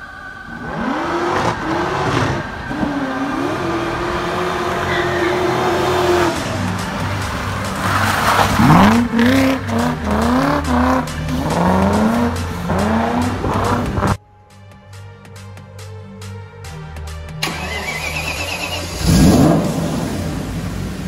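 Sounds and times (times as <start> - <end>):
tyre squeal: 0.0 - 6.5, 17.4 - 19.3
car engine revving: 0.0 - 14.2, 17.4 - 21.0.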